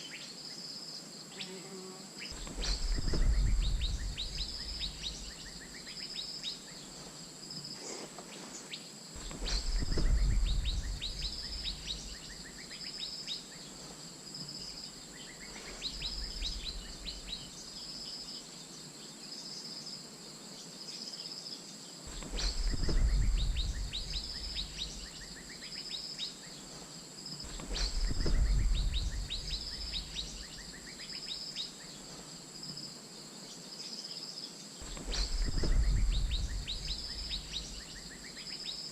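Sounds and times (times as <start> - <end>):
high insect drone: 0.0 - 38.9
bird calls and whistles: 2.2 - 6.8, 7.8 - 13.6, 22.1 - 26.6, 27.5 - 31.8, 34.8 - 38.9
low rumbles: 2.4 - 5.5, 9.2 - 12.3, 22.1 - 25.2, 27.5 - 30.4, 34.8 - 38.2.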